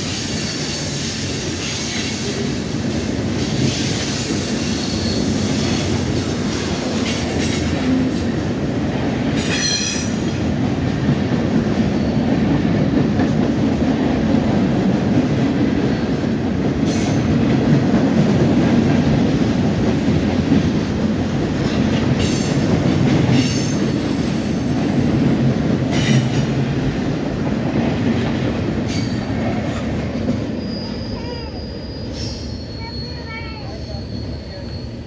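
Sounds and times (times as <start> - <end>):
freight train wheels rumbling: 0.0 - 35.0
wheel squeals: 30.4 - 35.0.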